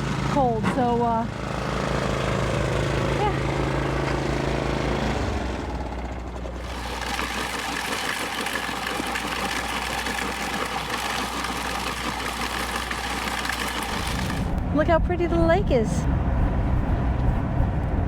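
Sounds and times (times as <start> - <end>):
vehicle engine running: 0.0 - 18.0
road noise: 13.9 - 18.0.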